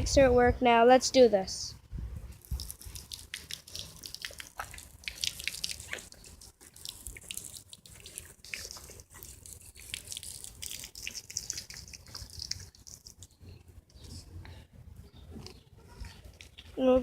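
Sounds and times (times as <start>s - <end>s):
little splashes and drips: 2.3s - 13.4s
water trickling down stream: 2.3s - 13.4s.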